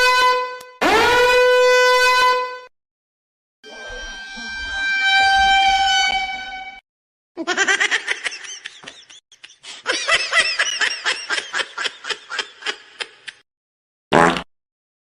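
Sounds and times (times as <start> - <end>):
person laughing high-pitched: 7.4 - 13.4.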